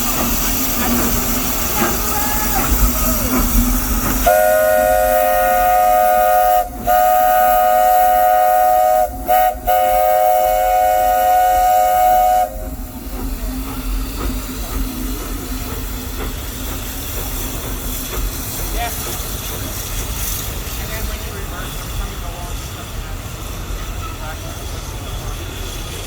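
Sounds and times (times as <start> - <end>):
steam hissing: 0.0 - 26.0
steam locomotive whistle: 4.2 - 13.0.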